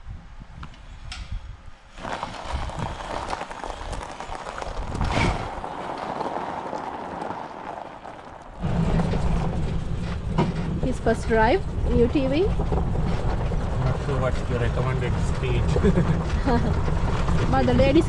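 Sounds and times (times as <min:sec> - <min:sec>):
sharp jolt: 0:01.9 - 0:10.8
tyres rumbling: 0:01.9 - 0:18.0.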